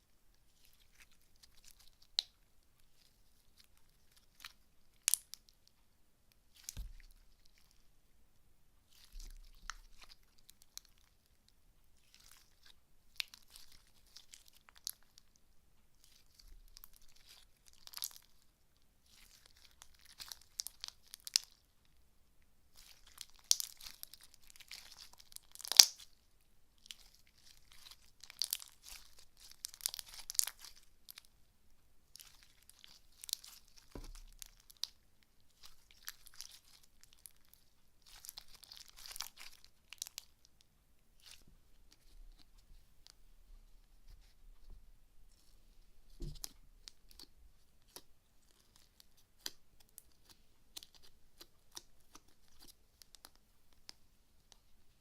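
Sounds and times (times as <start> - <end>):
slime squished by hand: 6.5 - 7.8, 19.0 - 21.6, 22.7 - 26.2, 26.8 - 31.3, 32.1 - 40.5, 46.1 - 53.9
slime popping: 22.8 - 26.1.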